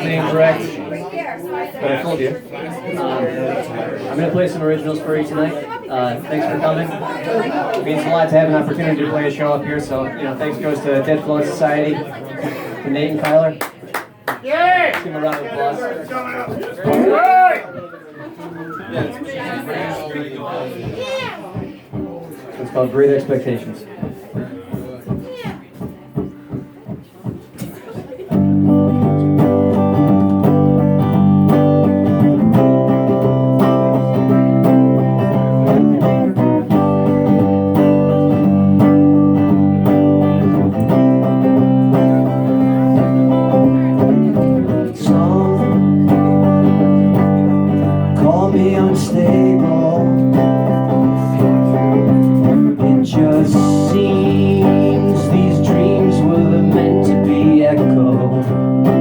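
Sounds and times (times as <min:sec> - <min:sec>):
electric guitar strumming chords: 0:28.4 - 0:59.0.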